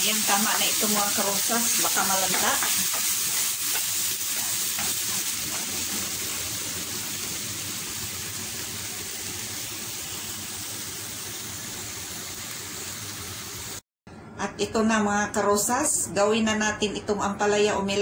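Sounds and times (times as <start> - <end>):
vegetables sizzling in oil: 0.0 - 13.8.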